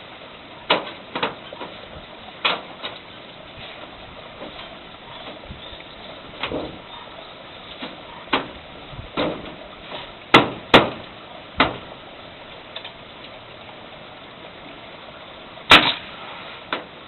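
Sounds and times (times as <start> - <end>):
steady background noise: 0.0 - 17.0
hammer striking roofing: 10.3 - 11.0, 11.6 - 11.9.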